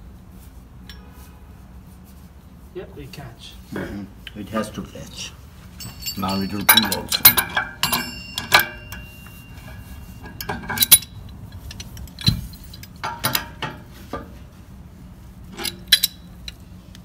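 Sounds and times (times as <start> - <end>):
wrench clinking on metal: 5.8 - 13.8, 15.5 - 16.6.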